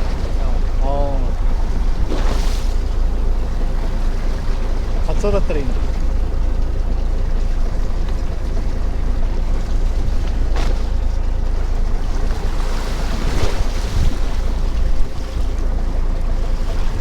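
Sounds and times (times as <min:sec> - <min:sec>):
wind on microphone: 0:00.0 - 0:03.2, 0:12.4 - 0:15.6
boat engine rumbling: 0:00.0 - 0:17.0
sea against hull: 0:00.0 - 0:17.0.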